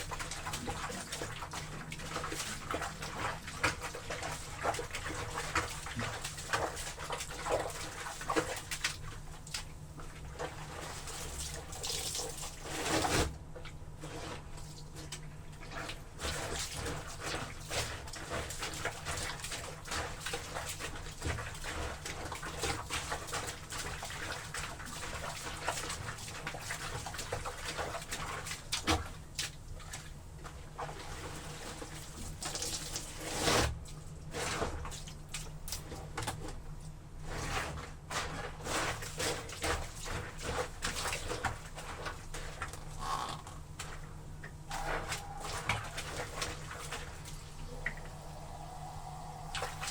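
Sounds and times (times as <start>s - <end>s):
wet laundry sloshing and squelching: 0.0s - 49.9s
water splashes: 38.8s - 49.9s.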